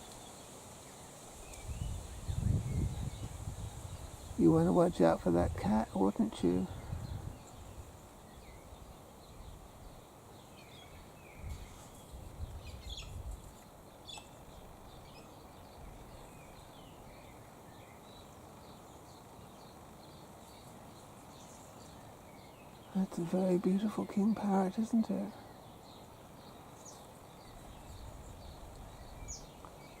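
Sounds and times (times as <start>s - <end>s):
wind rumbling on microphone: 1.4s - 10.0s, 11.3s - 13.5s.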